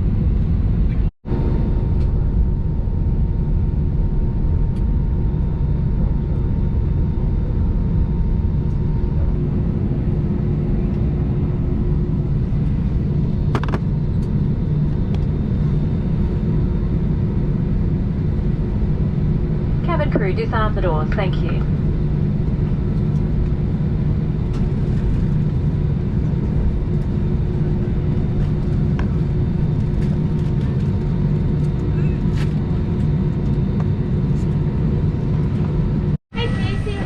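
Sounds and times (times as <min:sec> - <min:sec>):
idling jet engines rumble: 0:00.0 - 0:37.0.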